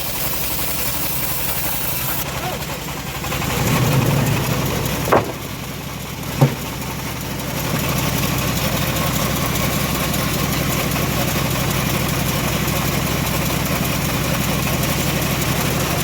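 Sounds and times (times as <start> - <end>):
sawmill engine running: 0.0 - 16.0
sharp knocks: 5.0 - 5.6, 6.3 - 6.8.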